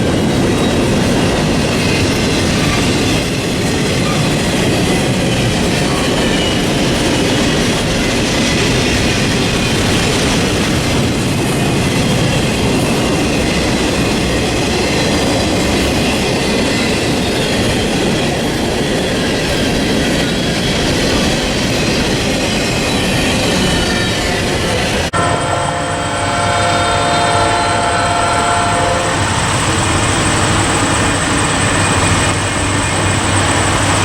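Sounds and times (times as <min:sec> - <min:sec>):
train wheels rumbling on rails: 0:00.0 - 0:34.0
high-pitched wheel squeal: 0:25.2 - 0:34.0.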